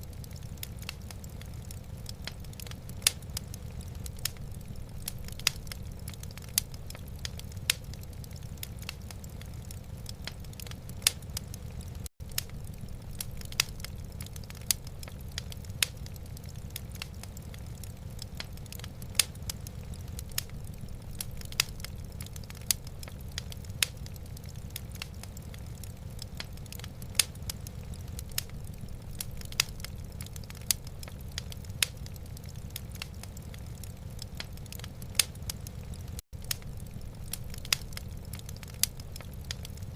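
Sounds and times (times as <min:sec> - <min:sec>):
low steady rumble: 0:00.0 - 0:39.9
wood fire crackling and popping: 0:00.0 - 0:39.9.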